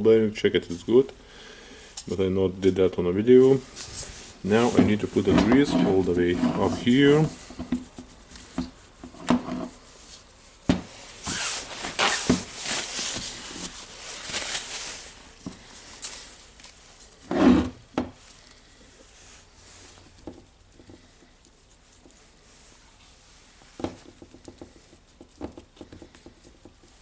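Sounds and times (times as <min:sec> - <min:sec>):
quiet handling noises: 0:01.9 - 0:17.2
rubbing with light clicks: 0:03.3 - 0:17.5, 0:18.2 - 0:27.0.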